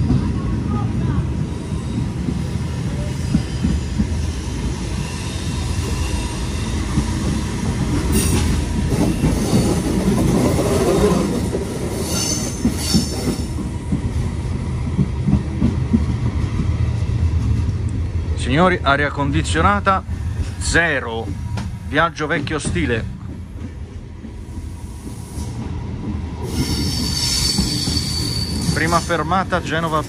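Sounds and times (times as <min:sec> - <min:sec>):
train wheels rumbling on rails: 0:00.0 - 0:30.0
high wheel squeals: 0:11.9 - 0:13.5, 0:26.4 - 0:29.3.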